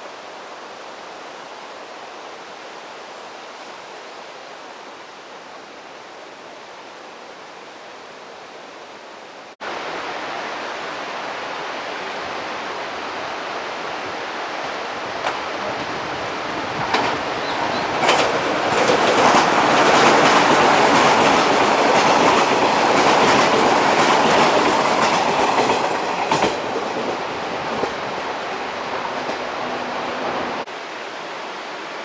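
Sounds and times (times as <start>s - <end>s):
outdoor rushing noise: 22.6s - 27.3s.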